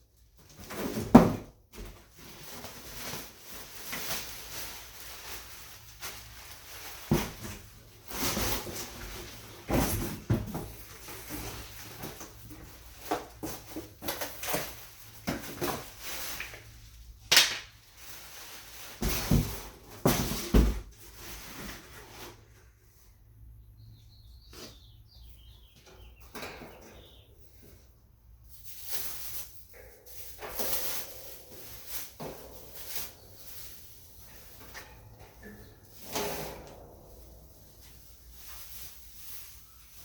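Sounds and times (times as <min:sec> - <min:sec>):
sharp crack: 0:17.3 - 0:17.8.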